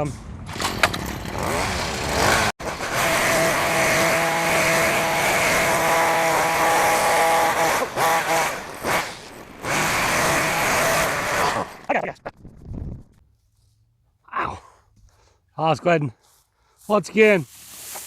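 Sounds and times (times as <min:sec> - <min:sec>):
small gas engine running: 0:01.0 - 0:11.8.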